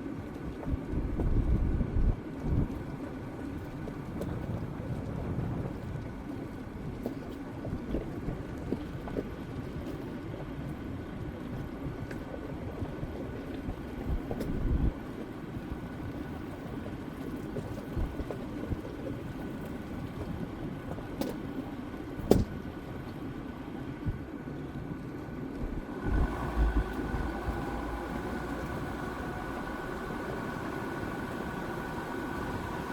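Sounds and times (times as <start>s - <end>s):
diesel vehicle driving rumble: 25.6s - 32.9s.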